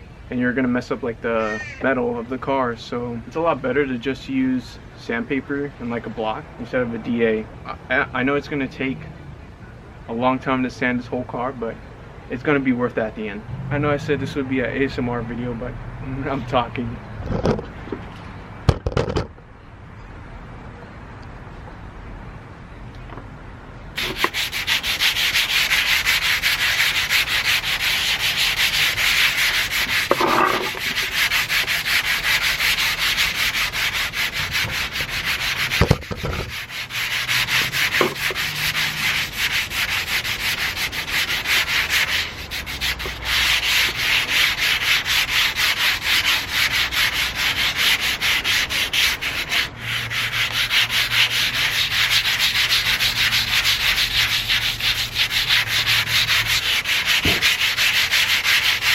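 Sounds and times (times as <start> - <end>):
sandpaper scraping paint: 24.0 - 58.9.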